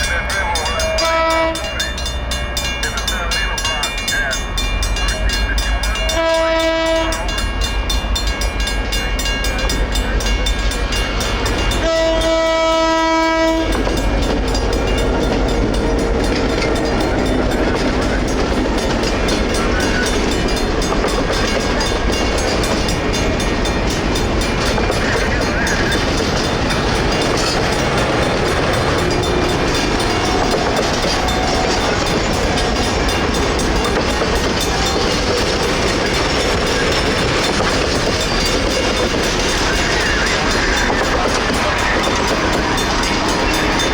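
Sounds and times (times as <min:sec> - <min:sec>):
diesel locomotive rumble: 0:00.0 - 0:43.9
railroad crossing bell ringing: 0:00.0 - 0:43.9
train wheels clacking on rails: 0:00.0 - 0:43.9
locomotive air horn: 0:00.9 - 0:01.8, 0:06.0 - 0:07.3, 0:11.8 - 0:13.9.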